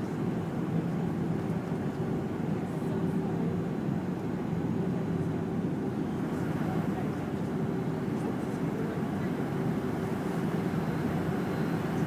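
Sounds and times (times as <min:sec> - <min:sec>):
airflow rushing in jet cabin: 0:00.0 - 0:12.0
jet engine drone: 0:05.3 - 0:12.0.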